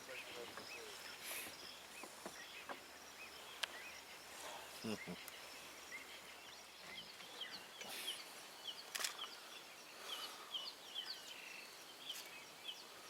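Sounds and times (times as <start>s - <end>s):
birds chirping: 0.0s - 13.0s
sharp clicks: 8.9s - 9.3s.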